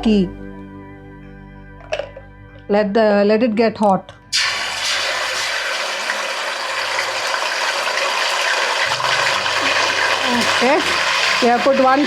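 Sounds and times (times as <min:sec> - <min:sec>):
paste sizzling in hot oil: 0:04.3 - 0:12.0.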